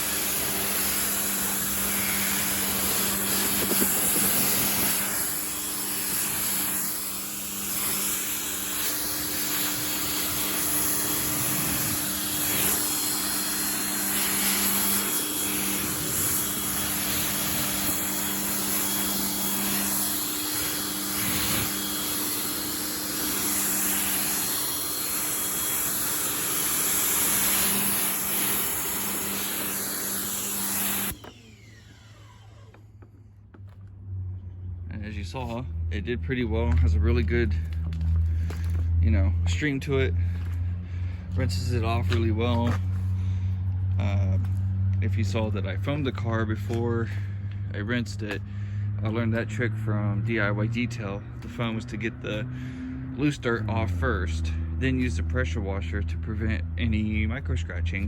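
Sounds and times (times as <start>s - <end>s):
water spray hissing: 0.0s - 31.2s
pressure washer motor whine: 0.0s - 56.7s.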